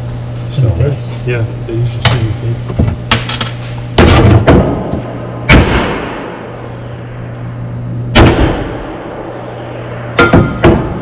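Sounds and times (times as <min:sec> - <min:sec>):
steady low hum: 0:00.0 - 0:11.0
metal parts banging and clanking: 0:03.1 - 0:04.5.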